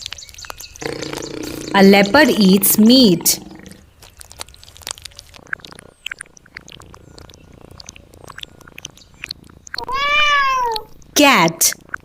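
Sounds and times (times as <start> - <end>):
faint clicks: 3.6 - 11.1
cat meowing: 9.8 - 10.9.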